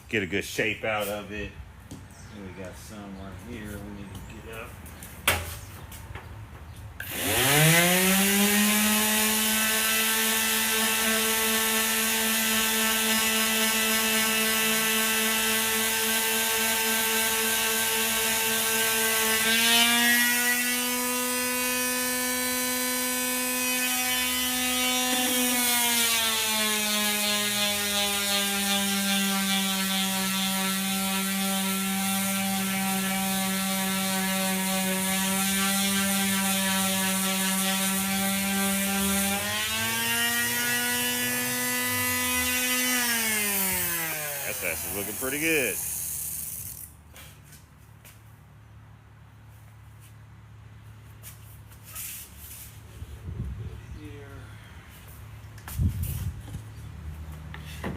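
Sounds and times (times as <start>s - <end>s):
power tool sanding foam panel: 7.0s - 46.9s.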